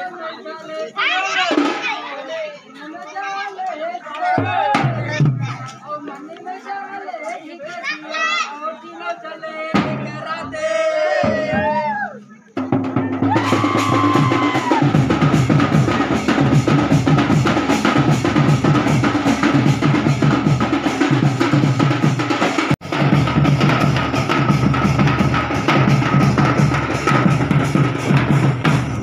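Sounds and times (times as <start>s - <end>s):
fast folk drumming: 4.3s - 5.6s, 9.7s - 10.4s, 12.6s - 29.0s.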